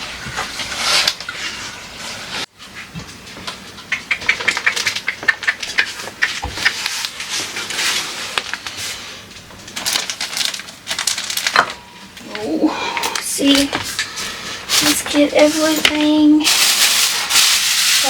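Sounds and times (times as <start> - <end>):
household items clattering: 13.0 - 18.0.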